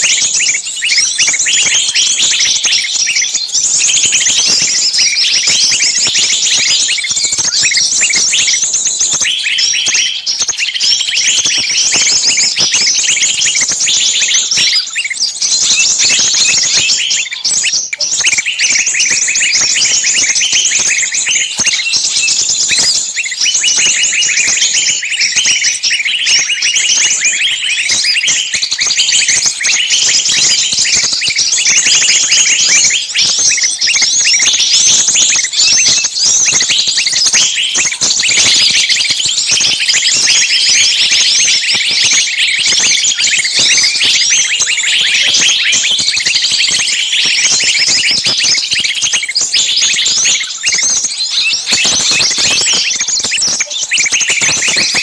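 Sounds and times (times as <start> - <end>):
chorus of birds chirping: 0.0 - 55.0.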